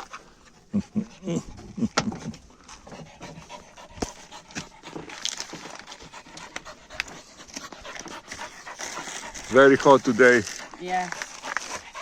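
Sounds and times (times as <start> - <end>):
dog panting: 2.4 - 12.0.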